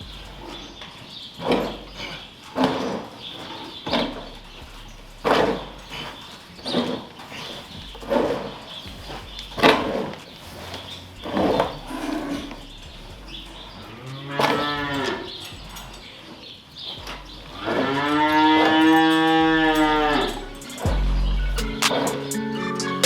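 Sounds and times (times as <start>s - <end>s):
cattle mooing: 13.5s - 16.0s, 17.6s - 20.6s.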